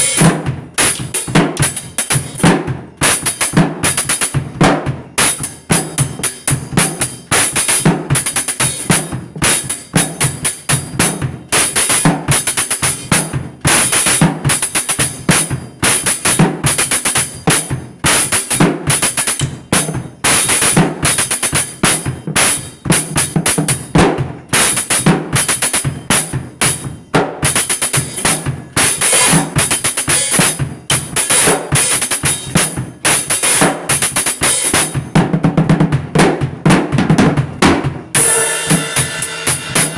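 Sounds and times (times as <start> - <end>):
cymbals ringing: 0.0 - 0.3, 28.9 - 29.5, 38.2 - 39.9
drum kit played fast: 0.0 - 39.9.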